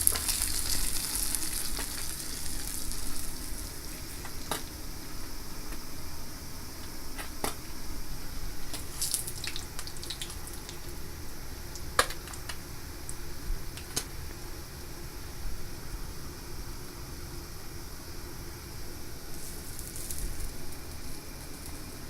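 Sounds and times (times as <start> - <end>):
fish frying in hot oil: 0.0 - 4.6, 8.6 - 14.0
oil popping: 0.0 - 4.7, 8.7 - 11.0.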